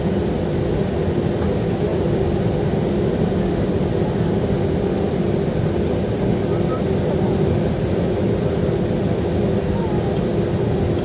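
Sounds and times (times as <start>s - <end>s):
airliner cabin drone: 0.0s - 11.0s.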